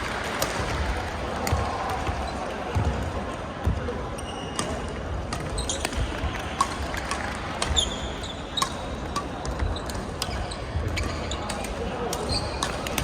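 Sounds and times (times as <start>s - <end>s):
sneakers squeaking on court: 9.6s - 11.5s.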